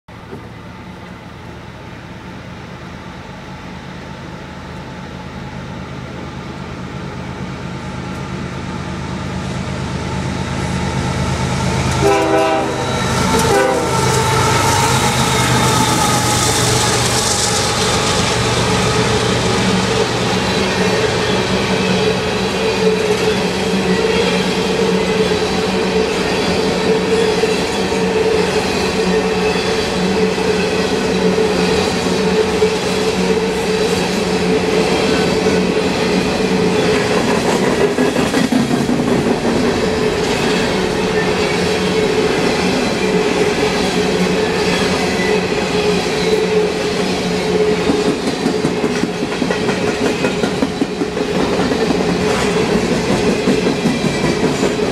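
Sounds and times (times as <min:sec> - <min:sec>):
diesel locomotives hauling train: 0:00.1 - 0:54.9
train wheels rolling on rails: 0:00.1 - 0:54.9
train horn blast: 0:11.9 - 0:17.3.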